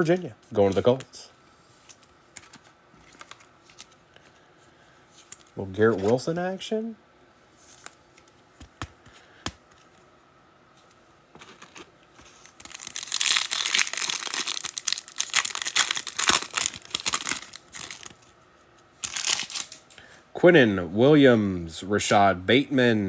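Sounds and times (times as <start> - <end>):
foil pack tearing and crinkling: 11.4 - 18.3, 19.0 - 19.9.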